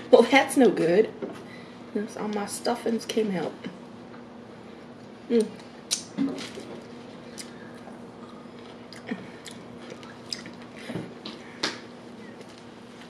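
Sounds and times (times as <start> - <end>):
wet mouth clicks: 5.4 - 6.1
person chewing: 5.9 - 10.8.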